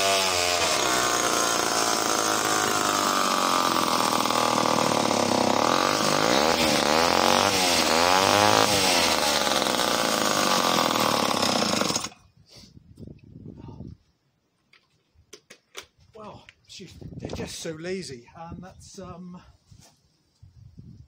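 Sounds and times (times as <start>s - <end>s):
chainsaw cutting wood: 0.0s - 12.3s.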